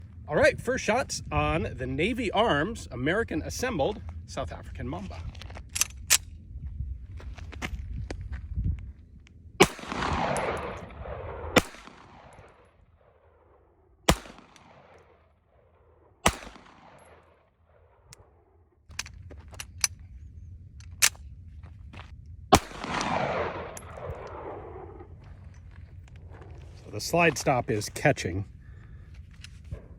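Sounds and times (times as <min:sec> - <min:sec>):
pistol shots with echo: 0:09.6 - 0:12.6, 0:14.1 - 0:15.1, 0:16.2 - 0:17.4, 0:22.5 - 0:25.1.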